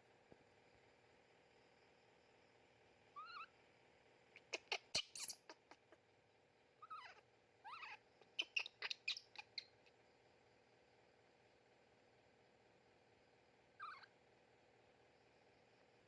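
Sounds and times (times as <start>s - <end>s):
baby monkey squeaking: 3.2s - 3.5s, 4.4s - 6.0s, 6.8s - 9.8s, 13.8s - 14.1s.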